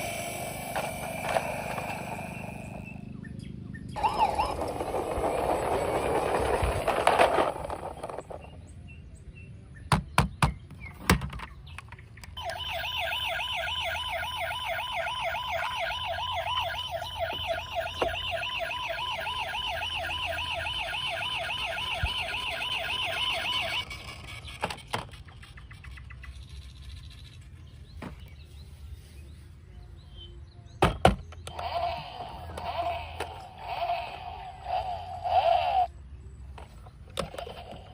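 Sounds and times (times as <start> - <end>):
toy siren wailing: 0.0 - 3.0, 4.0 - 8.3, 12.4 - 24.4, 31.5 - 35.9.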